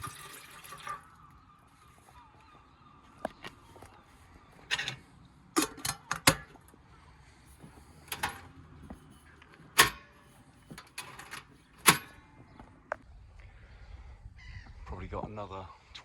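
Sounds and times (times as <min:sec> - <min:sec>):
objects knocking and clicking: 0:05.6 - 0:06.8.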